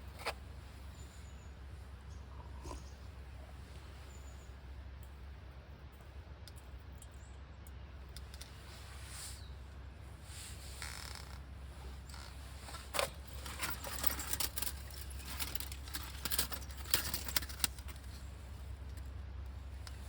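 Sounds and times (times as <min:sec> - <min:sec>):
steady low hum: 0:00.0 - 0:20.0
sharp clicks and clinks: 0:12.8 - 0:18.1.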